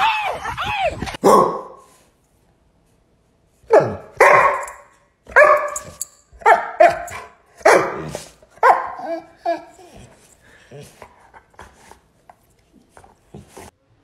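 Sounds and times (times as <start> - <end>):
dog barking: 1.2 - 1.8, 3.7 - 9.2.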